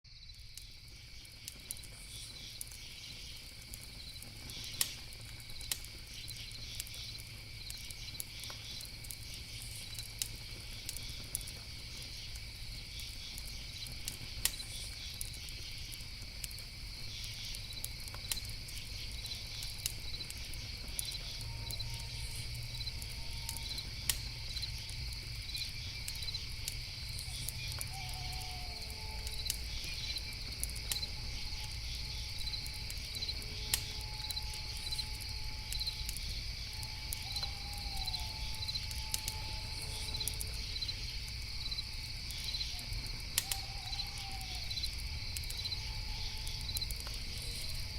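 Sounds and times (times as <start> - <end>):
campfire popping and crackling: 0.1 - 47.9
crickets chirring: 0.1 - 47.9.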